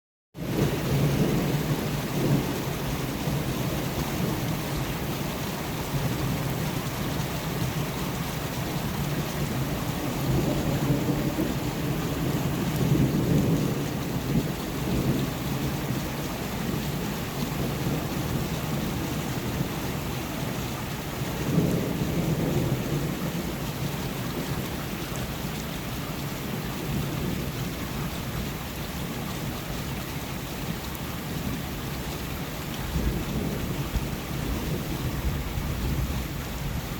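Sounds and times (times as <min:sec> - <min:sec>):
thunder rumbling: 0:00.4 - 0:25.7, 0:32.8 - 0:36.9
steady rain: 0:00.4 - 0:36.9.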